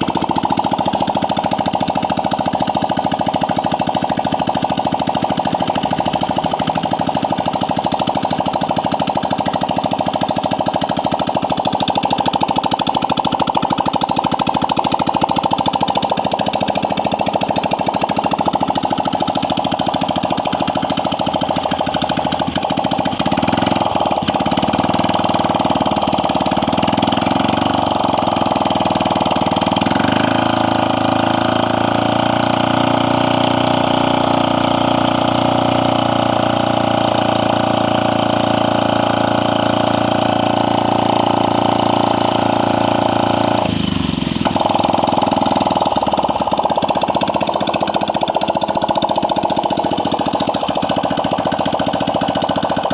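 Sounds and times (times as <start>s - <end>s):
scooter engine running: 0.0s - 52.9s.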